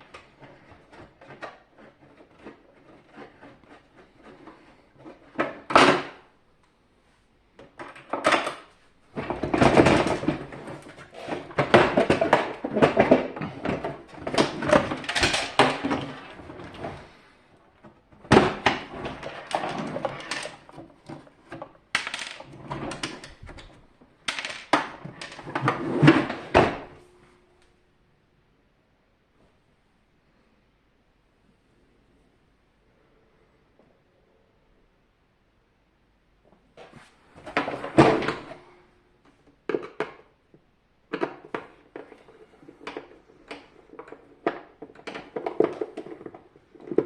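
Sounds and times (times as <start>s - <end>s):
plastic parts and tools clattering: 0.0s - 6.2s, 7.6s - 27.0s, 36.8s - 38.7s, 39.4s - 40.4s, 41.0s - 47.0s.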